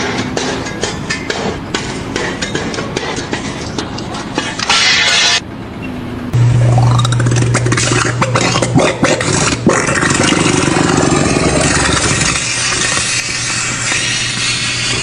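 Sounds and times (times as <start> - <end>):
sharp knocks and clatter: 0.0 - 4.7
engine running with whine: 0.0 - 15.0.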